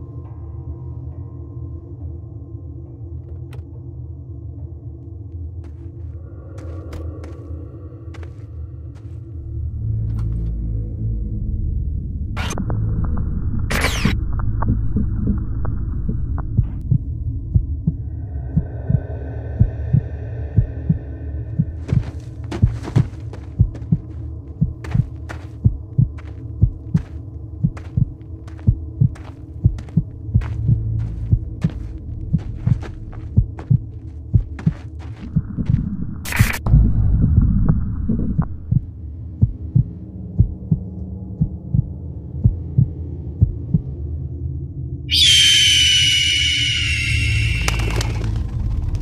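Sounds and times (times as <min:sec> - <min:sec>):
low hum: 0:00.0 - 0:49.0
steady low drone: 0:00.0 - 0:49.0
heartbeat thumping: 0:14.3 - 0:44.0
high ringing tone: 0:45.1 - 0:48.0.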